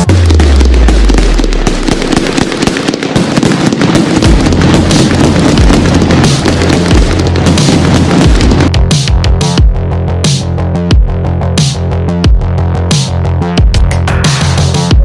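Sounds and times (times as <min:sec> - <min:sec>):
firecrackers cracking rapidly: 0:00.0 - 0:08.7.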